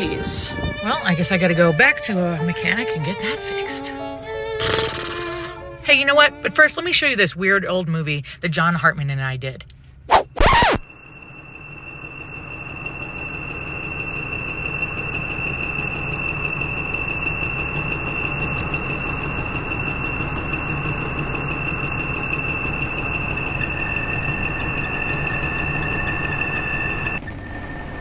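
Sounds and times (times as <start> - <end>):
high-pitched whine: 4.6 - 5.6, 10.1 - 28.0
low hum: 10.1 - 28.0
lower tone: 10.2 - 28.0.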